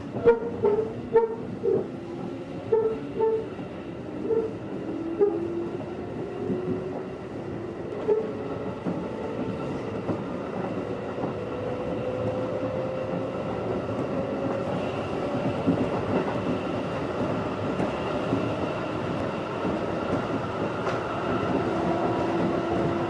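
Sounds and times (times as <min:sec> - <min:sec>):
train rumble: 0:00.0 - 0:23.0
train wheels knocking on rail joints: 0:19.5 - 0:23.0.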